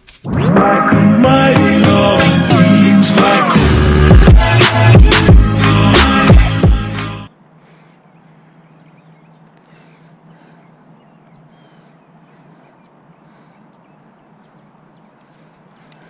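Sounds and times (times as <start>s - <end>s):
distant bird calls: 7.3s - 16.0s
light ticks: 8.8s - 9.7s, 13.7s - 14.6s, 15.2s - 16.0s.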